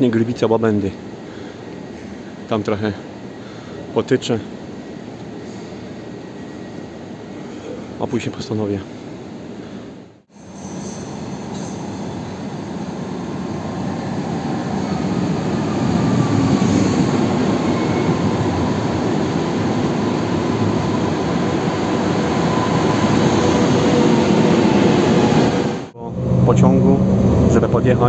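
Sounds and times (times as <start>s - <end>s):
train rumbling: 10.3s - 28.0s.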